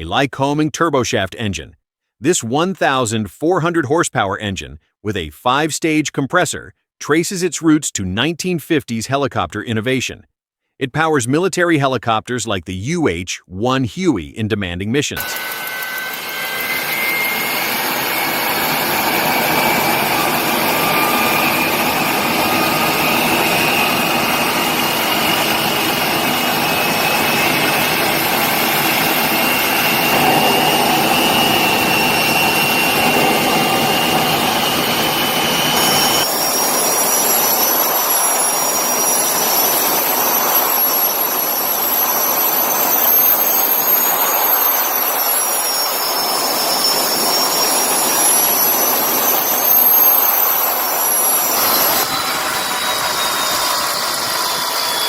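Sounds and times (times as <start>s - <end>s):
turbine whine: 15.2s - 55.0s
turboshaft engine roaring: 15.2s - 55.0s.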